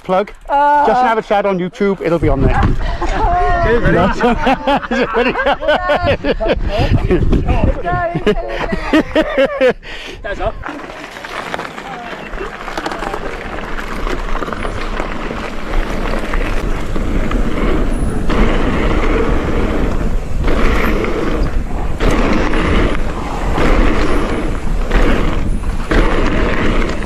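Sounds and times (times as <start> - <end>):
wind rushing over microphone: 2.1 - 27.0
bike tyre trail noise: 9.2 - 27.0.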